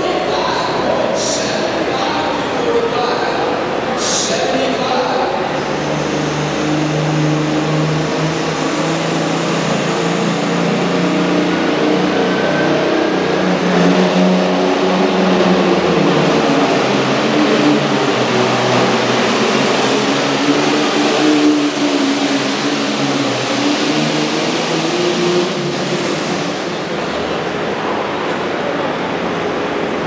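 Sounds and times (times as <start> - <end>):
diesel engine running loud: 5.3 - 28.4.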